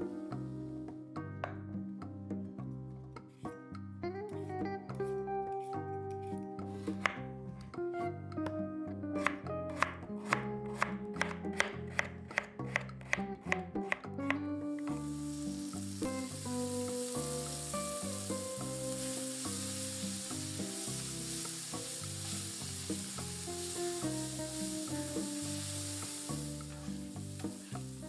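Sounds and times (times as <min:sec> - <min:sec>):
background music: 0:00.0 - 0:28.0
mushrooms sizzling in oil: 0:14.8 - 0:28.0.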